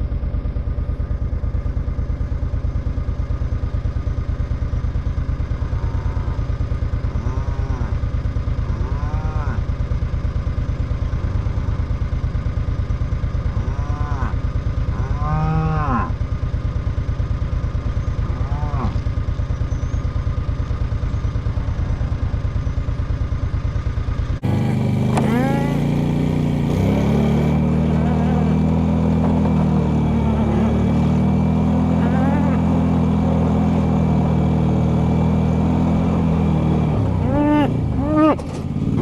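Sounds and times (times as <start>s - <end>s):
steady engine hum: 0.0s - 39.0s
cattle mooing: 5.8s - 6.4s, 7.1s - 8.0s, 8.6s - 9.6s, 13.6s - 16.2s, 18.3s - 19.0s, 25.1s - 26.0s, 26.7s - 33.9s, 37.2s - 38.5s.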